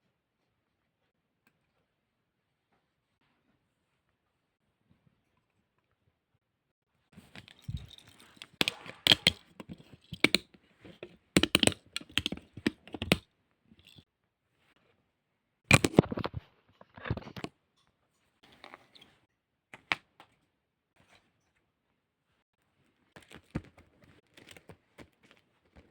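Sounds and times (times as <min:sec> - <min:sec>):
rustling handling noise: 0:07.1 - 0:13.2, 0:13.8 - 0:14.0, 0:22.8 - 0:25.9
handling clicks and knocks: 0:07.2 - 0:13.2, 0:13.8 - 0:14.0, 0:15.7 - 0:16.2, 0:23.2 - 0:25.9.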